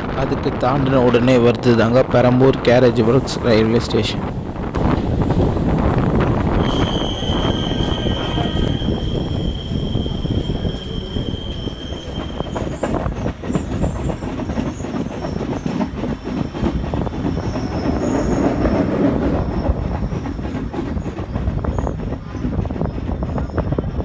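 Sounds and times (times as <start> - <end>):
train wheels rumbling and clacking: 0.0 - 24.0
high-pitched squeal: 6.5 - 15.4, 16.2 - 22.0.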